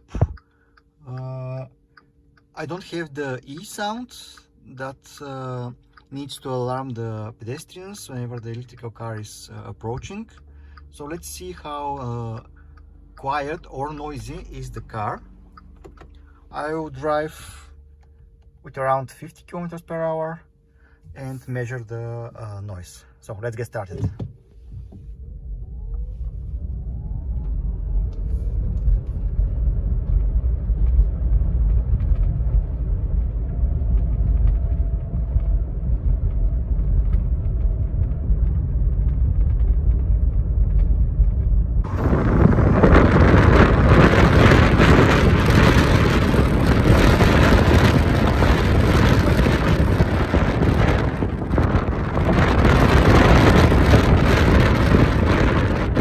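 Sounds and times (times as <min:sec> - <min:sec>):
faint rising whine: 0:00.0 - 0:23.8, 0:24.5 - 0:56.0
tyres rumbling on road: 0:24.9 - 0:56.0.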